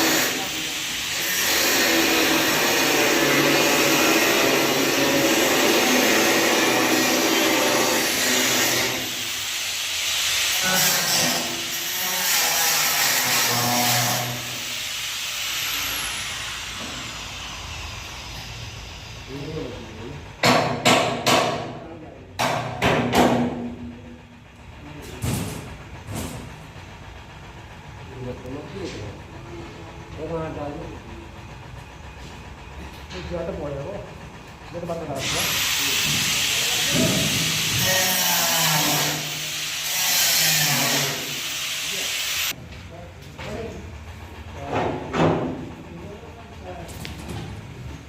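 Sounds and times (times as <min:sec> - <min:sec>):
motor-driven machine hissing: 0:00.0 - 0:20.0, 0:35.1 - 0:42.6
hammer striking metal: 0:20.4 - 0:21.8, 0:22.4 - 0:23.7.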